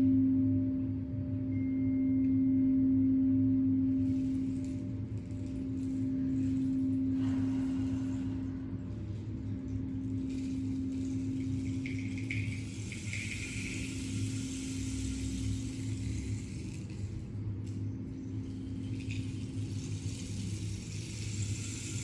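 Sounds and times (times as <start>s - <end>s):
singing bowl ringing: 1.4s - 7.2s, 9.9s - 17.0s.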